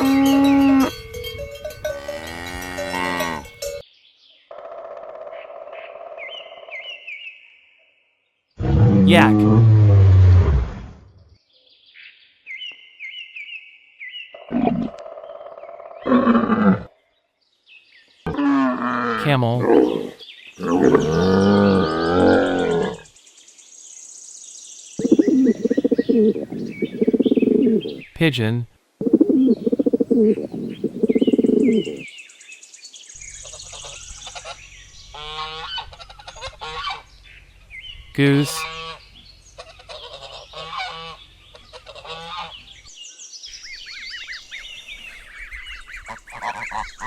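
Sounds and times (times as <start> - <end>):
rapid pulsing rumble of calls: 25.0 - 28.0, 29.0 - 32.0, 44.4 - 47.0
camel calling: 29.0 - 32.0
geese honking: 35.2 - 37.0, 39.7 - 42.6, 45.8 - 47.0.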